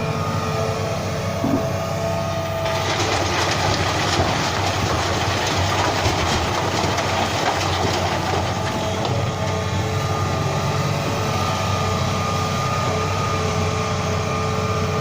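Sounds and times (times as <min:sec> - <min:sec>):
truck engine droning: 0:00.0 - 0:15.0
dense clattering rattle: 0:02.6 - 0:09.8.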